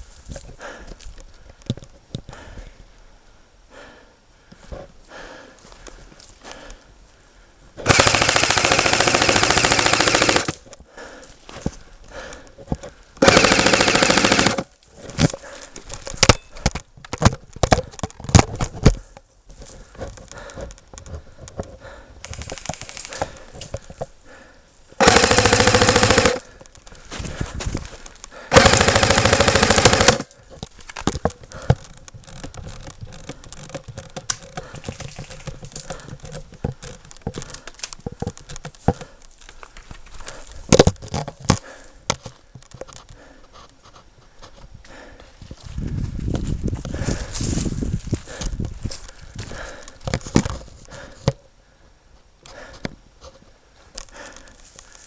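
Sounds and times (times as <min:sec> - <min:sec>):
airsoft gun rapid bursts: 0:07.8 - 0:10.7, 0:13.2 - 0:14.7, 0:22.2 - 0:23.6, 0:25.0 - 0:26.6, 0:28.5 - 0:30.3.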